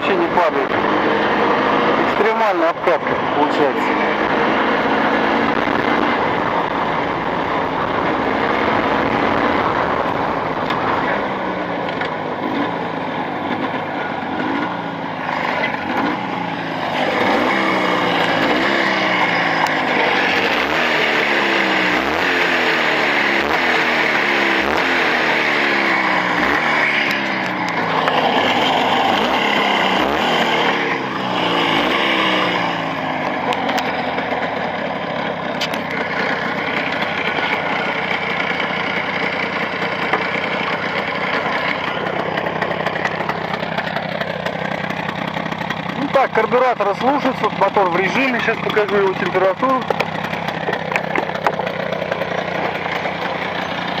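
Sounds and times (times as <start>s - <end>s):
engine revving under load: 0.0s - 54.0s.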